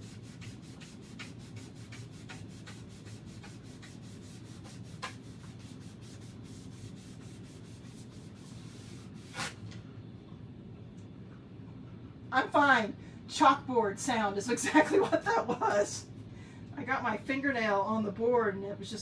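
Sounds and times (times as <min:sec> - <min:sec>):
foam eraser scrubbing chalkboard: 0:00.0 - 0:09.6.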